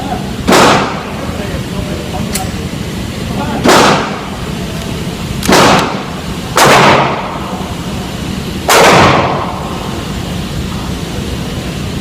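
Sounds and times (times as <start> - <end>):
shotgun blasts: 0.5 - 1.0, 3.6 - 4.3, 5.4 - 7.4, 8.7 - 9.6.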